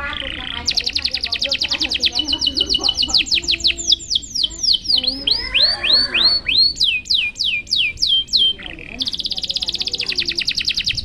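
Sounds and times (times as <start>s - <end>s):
canary singing whistled notes: 0.0s - 11.0s.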